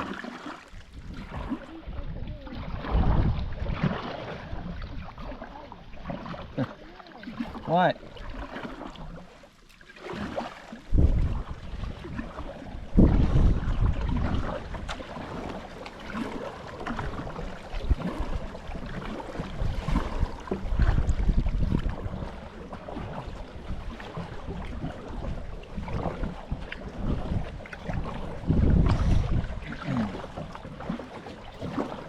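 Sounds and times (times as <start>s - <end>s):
flowing water rushing: 0.0s - 32.0s
wind buffeting microphone: 0.7s - 6.1s, 10.9s - 30.9s.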